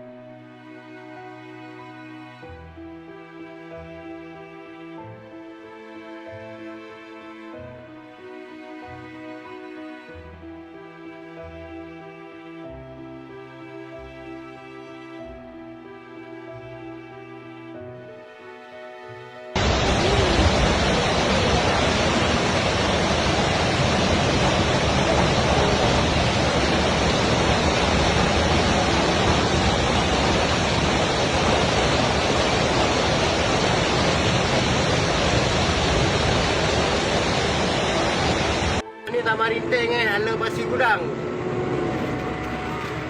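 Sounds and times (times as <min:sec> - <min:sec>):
torrential rain pouring: 0:19.6 - 0:38.8, 0:39.4 - 0:43.0.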